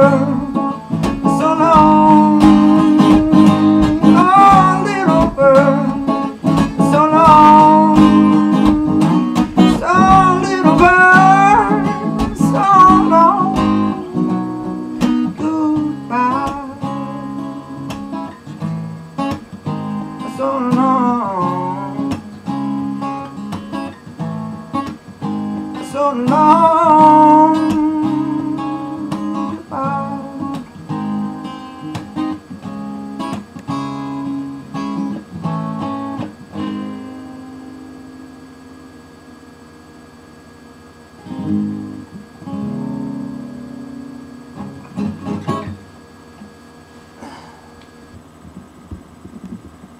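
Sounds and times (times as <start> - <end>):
person singing: 0.0 - 14.7, 15.3 - 18.0, 20.2 - 22.2, 25.8 - 30.6
acoustic guitar strumming: 0.0 - 49.9.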